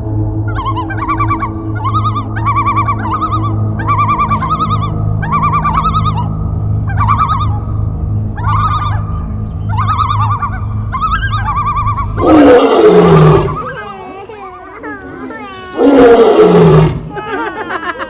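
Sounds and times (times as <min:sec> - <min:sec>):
steady low hum: 0:00.0 - 0:16.2
bird warbling trill: 0:00.4 - 0:17.1.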